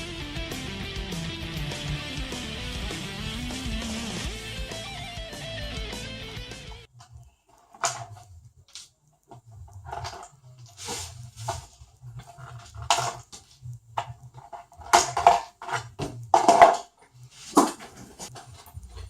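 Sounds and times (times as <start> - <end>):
plastic parts clicking and knocking: 6.9 - 19.0.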